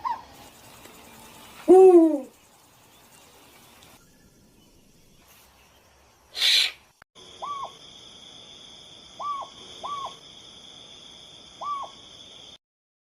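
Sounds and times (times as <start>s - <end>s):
owl hooting: 1.6s - 2.3s, 6.3s - 6.8s, 7.4s - 7.8s, 9.2s - 10.2s, 11.6s - 12.0s.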